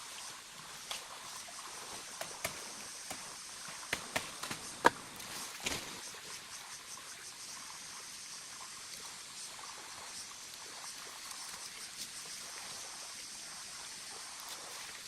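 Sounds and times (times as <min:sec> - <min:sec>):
sharp knocks: 0:02.2 - 0:05.2.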